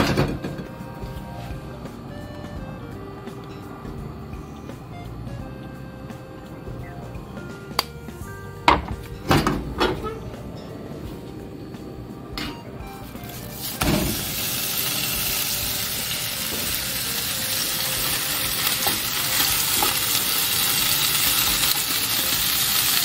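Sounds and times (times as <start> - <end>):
cabbage sizzling in a pan: 13.0 - 23.0.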